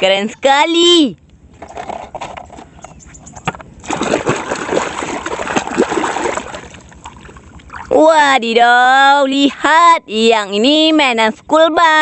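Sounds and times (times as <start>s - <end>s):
water splashing in a tub: 3.8s - 8.0s.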